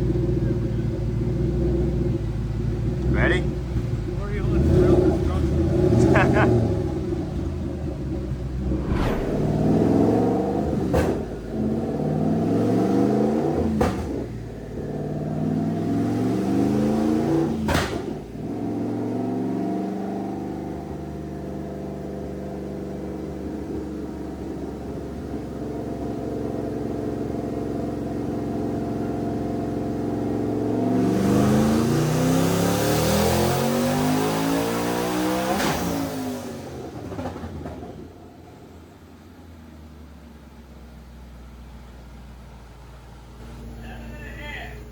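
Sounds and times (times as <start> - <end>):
engine revving on a dyno: 3.7 - 7.4, 8.7 - 37.5.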